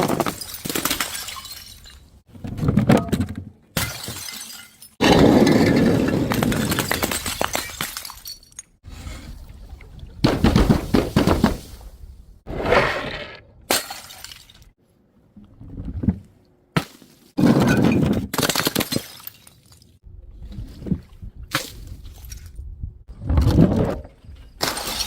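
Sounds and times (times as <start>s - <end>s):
glass bottles shattering: 0.0s - 2.1s, 3.8s - 8.8s.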